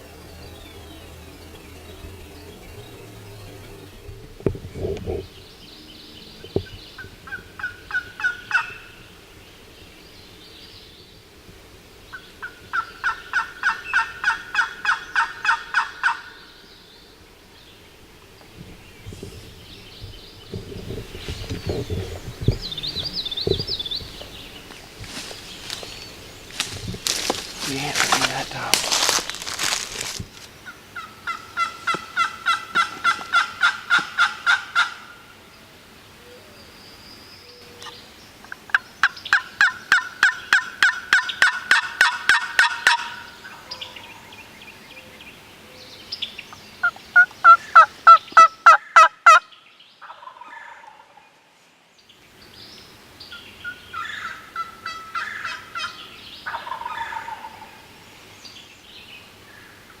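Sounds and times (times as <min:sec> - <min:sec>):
wild turkey yelping: 0:07.0 - 0:09.0, 0:12.1 - 0:16.4, 0:30.6 - 0:35.2, 0:38.7 - 0:44.2, 0:46.8 - 0:51.2, 0:53.6 - 0:57.9.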